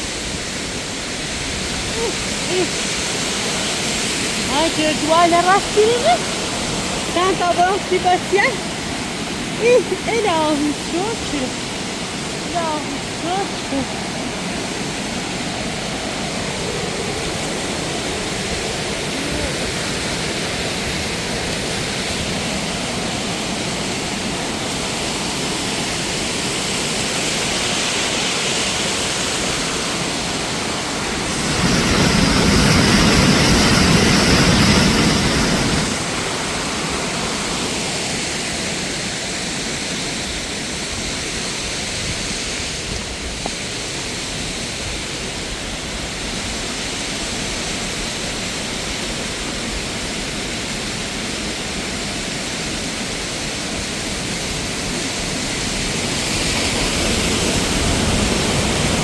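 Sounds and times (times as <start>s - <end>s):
waterfall rushing over rocks: 0.0s - 59.0s.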